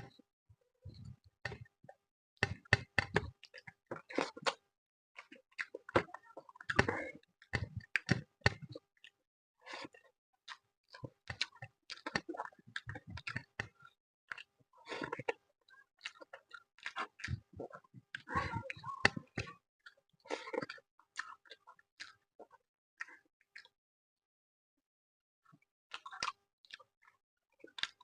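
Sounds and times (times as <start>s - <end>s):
chewing with mouth clicks: 2.4s - 4.6s, 5.2s - 9.2s, 9.8s - 23.8s, 25.9s - 28.0s.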